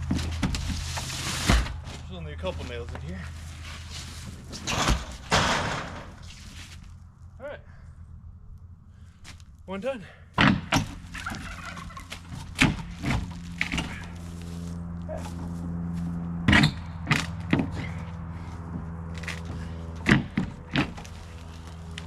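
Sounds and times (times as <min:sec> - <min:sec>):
wooden knocks and thuds: 0:10.4 - 0:11.4, 0:19.5 - 0:21.1.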